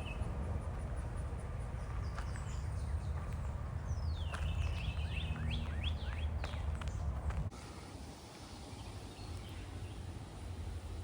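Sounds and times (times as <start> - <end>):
bird chirping: 1.8 - 7.4.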